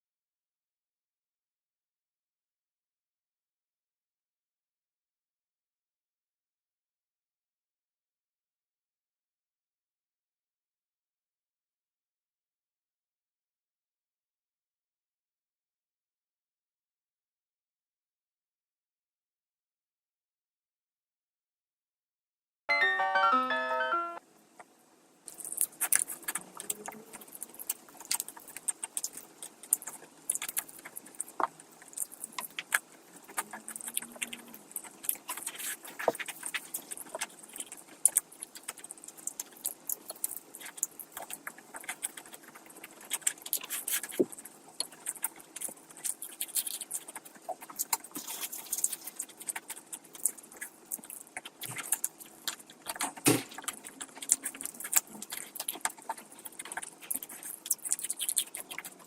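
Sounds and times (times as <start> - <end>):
chewing and wet mouth sounds: 25.2 - 59.0
sharp crunches and clicks: 25.3 - 59.0.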